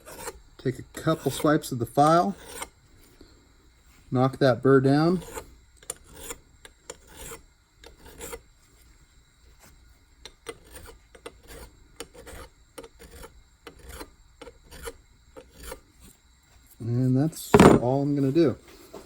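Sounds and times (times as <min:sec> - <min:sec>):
hand file rasping on metal: 0:00.0 - 0:00.4, 0:02.1 - 0:02.7, 0:05.1 - 0:08.4, 0:10.4 - 0:15.8.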